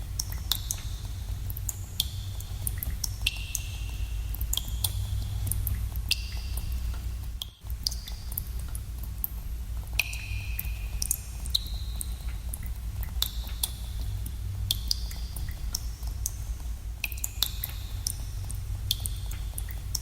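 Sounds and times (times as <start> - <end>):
faint ticks: 0.2 - 20.0
water drops plinking: 10.0 - 12.1.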